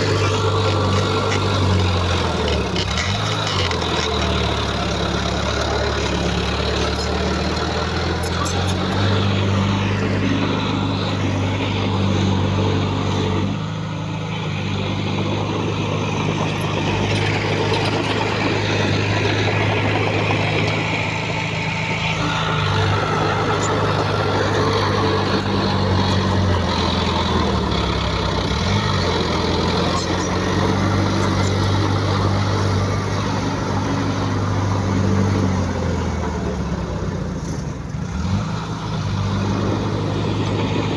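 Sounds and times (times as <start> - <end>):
heavy diesel engine revving: 0.0 - 40.9.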